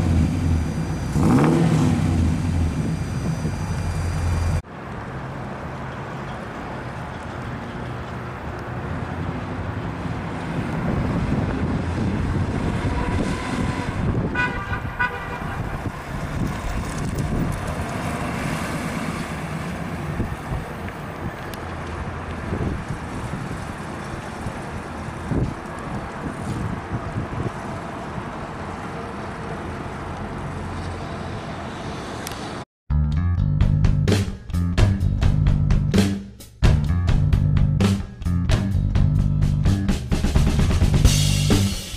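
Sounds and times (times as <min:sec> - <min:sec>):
car engine running: 0:00.0 - 0:04.6.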